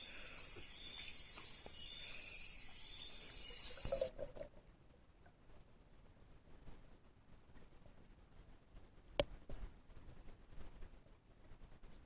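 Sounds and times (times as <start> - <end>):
crickets trilling: 0.0 - 4.1.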